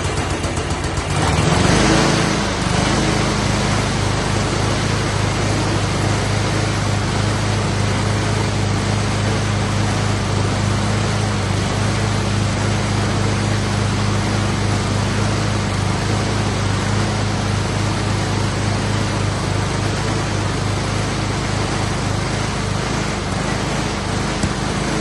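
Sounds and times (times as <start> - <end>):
riding lawn mower engine: 0.0 - 25.0.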